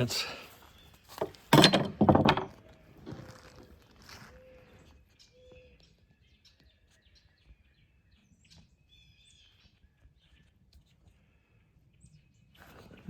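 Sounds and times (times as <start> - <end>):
faint birds chirping: 0.0 - 1.5, 2.1 - 13.0.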